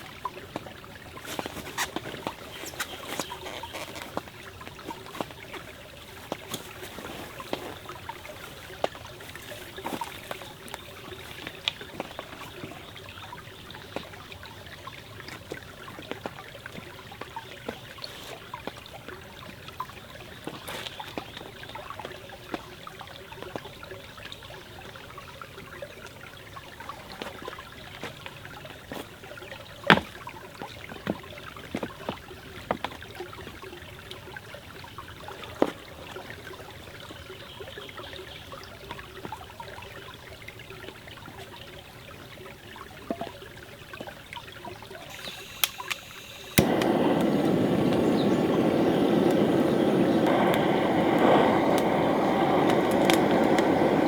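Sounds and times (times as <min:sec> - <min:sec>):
stream trickling: 0:00.0 - 0:54.0
sharp clicks and pops: 0:45.1 - 0:54.0.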